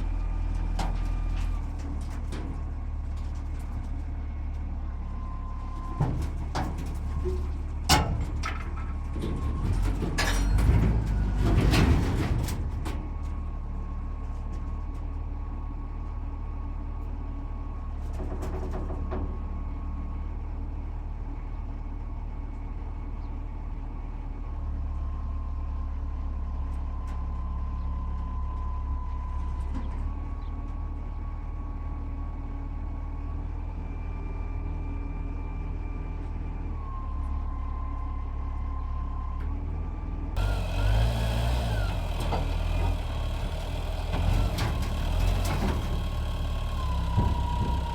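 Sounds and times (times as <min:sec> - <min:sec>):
truck engine running: 0:23.9 - 0:47.9.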